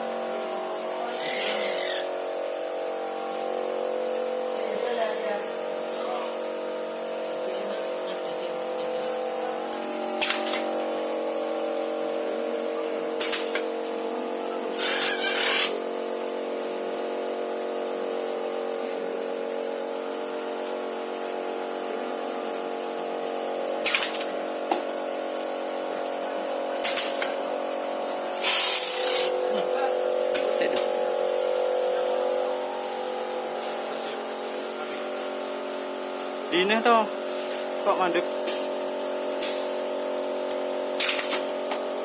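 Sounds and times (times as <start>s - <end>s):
machine humming: 0.0s - 42.0s
air hissing bursts: 0.9s - 2.6s, 9.9s - 11.2s, 14.7s - 15.9s, 23.8s - 24.6s, 28.4s - 29.5s.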